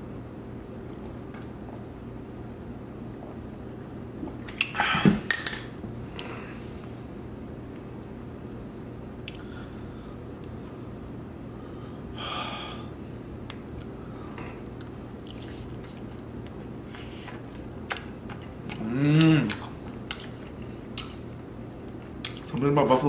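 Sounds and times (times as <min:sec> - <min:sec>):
faint steady hum: 0:00.0 - 0:23.0
person chewing and biting: 0:14.6 - 0:22.6
short hummed vocal sound: 0:18.6 - 0:19.9.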